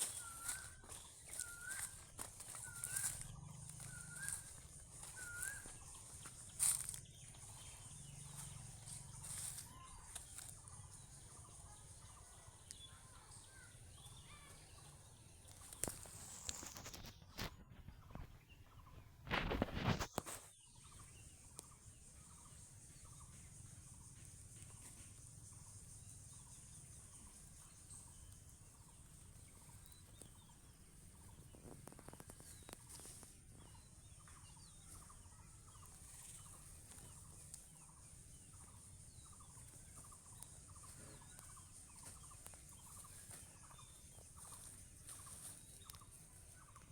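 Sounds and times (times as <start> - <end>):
faint chicken calls: 0.0 - 17.5.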